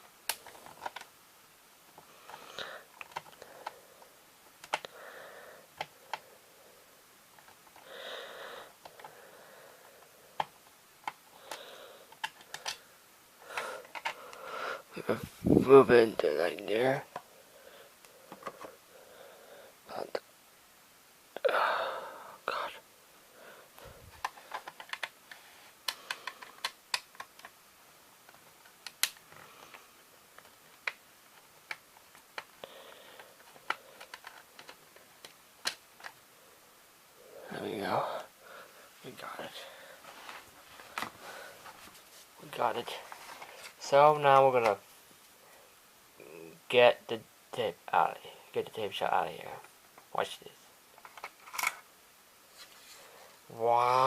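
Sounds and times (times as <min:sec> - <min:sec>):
plastic cassette parts clicking: 0:00.3 - 0:01.1, 0:02.3 - 0:03.8, 0:04.6 - 0:04.9, 0:10.4 - 0:12.8, 0:13.8 - 0:14.2, 0:24.2 - 0:27.6, 0:28.3 - 0:29.7, 0:33.2 - 0:36.2, 0:51.0 - 0:51.8.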